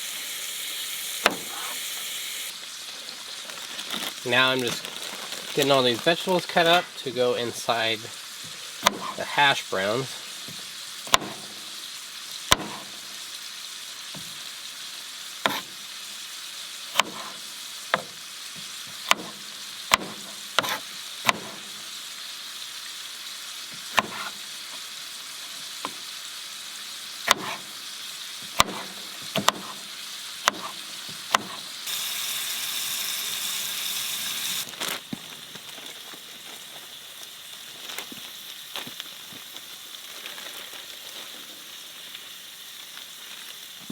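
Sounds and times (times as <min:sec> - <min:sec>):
food sizzling in a frying pan: 0:00.0 - 0:43.9
knife chopping on cutting board: 0:01.2 - 0:01.8, 0:08.8 - 0:09.2, 0:10.5 - 0:11.5, 0:12.5 - 0:12.9, 0:15.5 - 0:15.7, 0:17.0 - 0:18.2, 0:18.9 - 0:21.7, 0:23.8 - 0:24.4, 0:27.3 - 0:27.7, 0:28.5 - 0:31.7.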